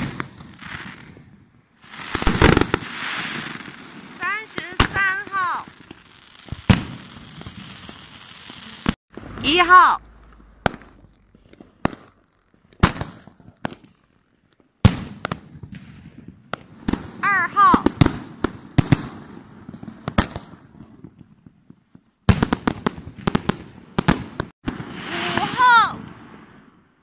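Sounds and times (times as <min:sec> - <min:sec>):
fireworks bangs and pops: 0:00.0 - 0:27.0
person calling out: 0:04.2 - 0:05.7, 0:09.4 - 0:10.1, 0:17.2 - 0:17.9, 0:25.1 - 0:26.0.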